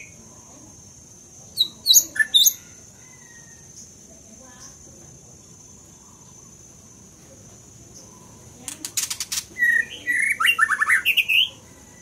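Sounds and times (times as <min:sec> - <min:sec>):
bird dry rattle: 0:08.6 - 0:09.5.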